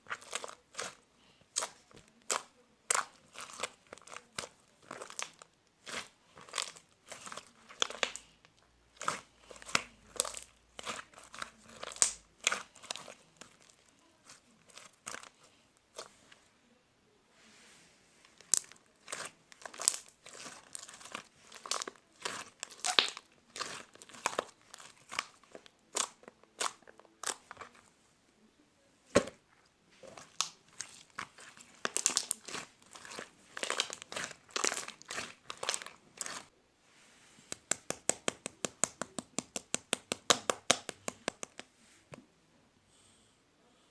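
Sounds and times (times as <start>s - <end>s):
slime squished by hand: 0.0s - 8.3s, 9.0s - 16.1s, 18.4s - 27.8s, 30.0s - 36.5s.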